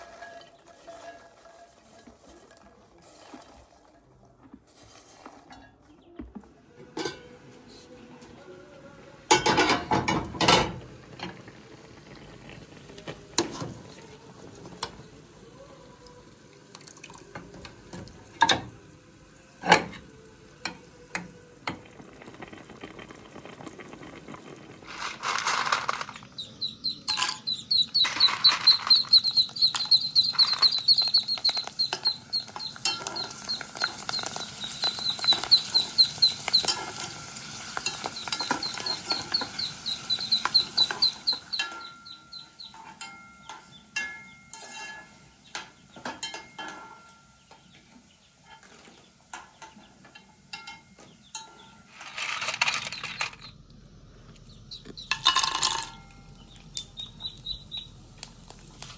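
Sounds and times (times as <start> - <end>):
pots and utensils clinking: 0.0 - 7.4, 9.3 - 11.5, 17.2 - 18.8, 19.6 - 21.9, 24.8 - 47.8, 48.4 - 53.5, 54.8 - 57.4
high chirps: 26.3 - 36.9, 37.8 - 42.8, 54.4 - 58.9.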